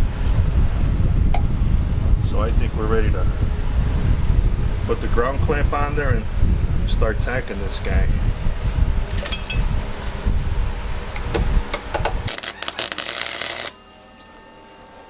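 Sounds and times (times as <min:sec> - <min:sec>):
low rumbling handling noise: 0:00.0 - 0:12.4
welding arc crackling: 0:12.0 - 0:14.0.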